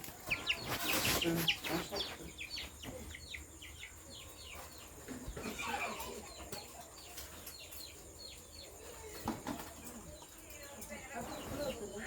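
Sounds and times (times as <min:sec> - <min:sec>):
rustling: 0:00.0 - 0:02.2
birds chirping: 0:00.0 - 0:12.0.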